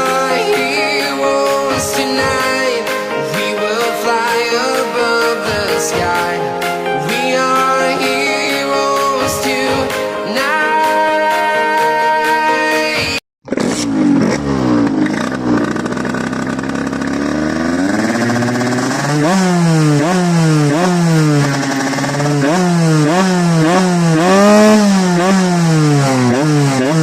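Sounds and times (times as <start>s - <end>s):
moped engine revving: 0.0s - 10.8s, 13.4s - 27.0s
music: 0.0s - 13.2s.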